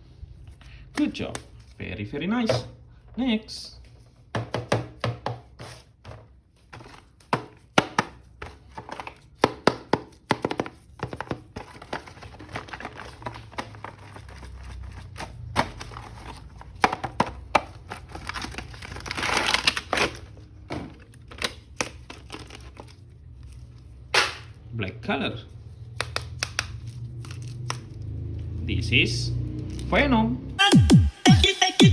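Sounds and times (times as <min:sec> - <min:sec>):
packaging crinkling: 0:10.5 - 0:24.0, 0:26.3 - 0:28.0.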